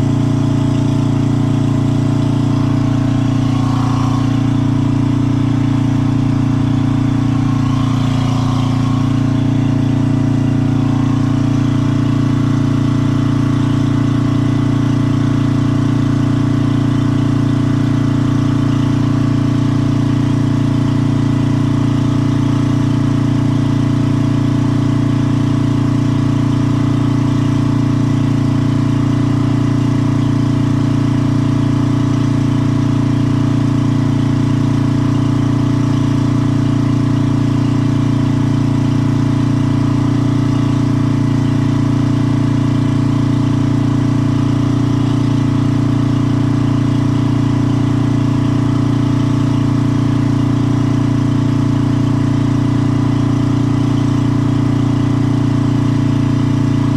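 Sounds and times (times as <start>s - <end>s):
small engine idling: 0.0s - 56.9s.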